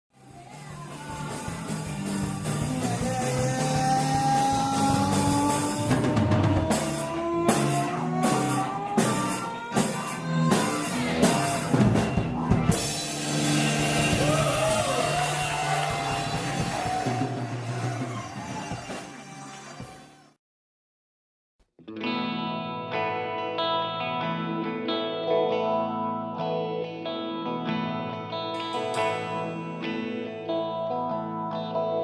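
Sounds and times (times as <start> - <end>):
sustained rock chords: 0.2 - 19.0, 21.8 - 32.0
rising lead guitar line: 0.2 - 19.9, 21.8 - 32.0
drum kit hits: 0.9 - 19.2.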